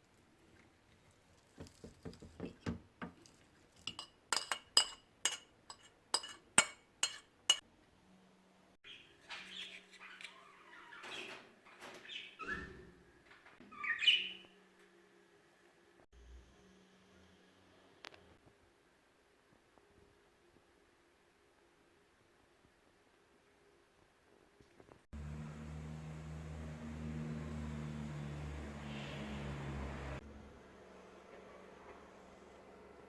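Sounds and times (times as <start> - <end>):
budgerigars chirping and warbling: 13.7 - 14.4.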